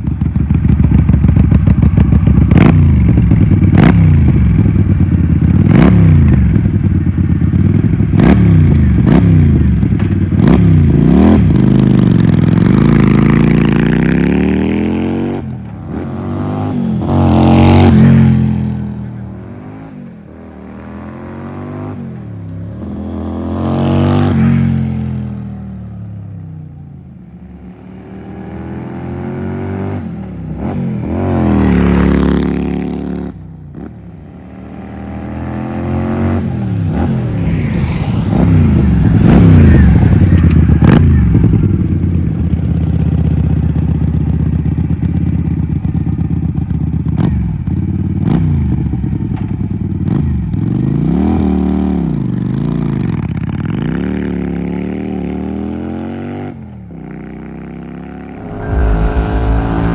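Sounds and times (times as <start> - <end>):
motorcycle engine revving: 0.1 - 19.0.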